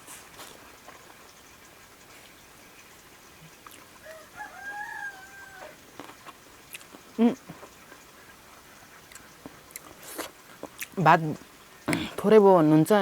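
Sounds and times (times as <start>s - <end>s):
rooster crowing: 4.0s - 5.8s.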